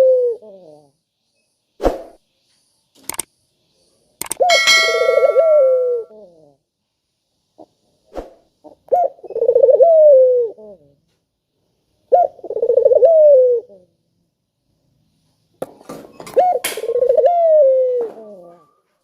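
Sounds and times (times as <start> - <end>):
dove cooing: 0.0 - 0.9, 4.4 - 6.6, 8.7 - 11.0, 12.1 - 14.0, 16.3 - 18.8
faint clicks: 4.2 - 4.4.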